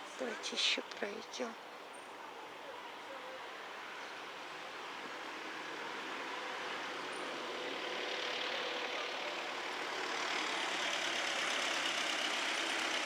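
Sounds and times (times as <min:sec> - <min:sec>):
vehicle engine running: 0:04.4 - 0:13.0.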